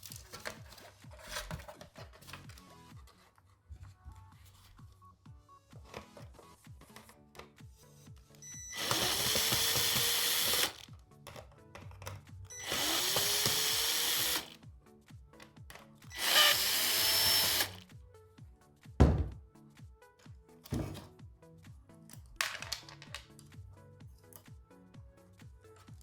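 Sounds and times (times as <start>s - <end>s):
electric power tool motor: 8.6s - 10.8s, 12.5s - 14.6s, 16.2s - 17.8s.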